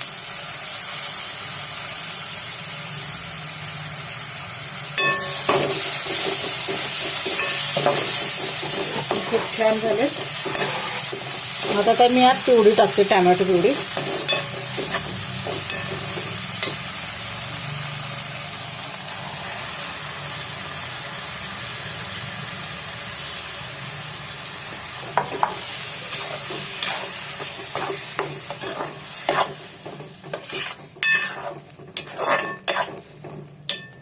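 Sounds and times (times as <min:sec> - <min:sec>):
puree sizzling in hot oil: 0:00.0 - 0:34.0
spoon scraping and knocking pan: 0:05.0 - 0:16.9, 0:25.0 - 0:34.0.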